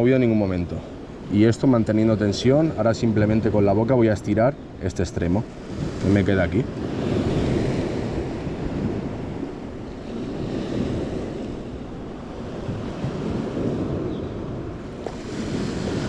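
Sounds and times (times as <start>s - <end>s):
sea waves washing on shore: 0.0s - 16.0s
wind on microphone: 5.4s - 16.0s.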